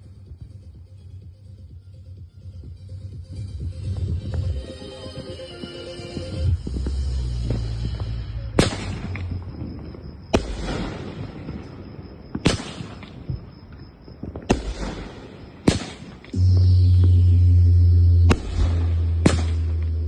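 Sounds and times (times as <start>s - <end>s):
music with deep bass: 0.0s - 8.9s, 16.4s - 20.0s
fireworks bangs: 5.6s - 20.0s.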